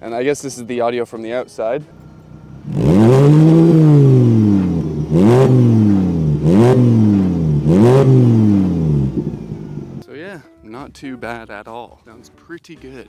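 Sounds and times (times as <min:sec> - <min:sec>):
car engine revving: 0:02.0 - 0:10.0.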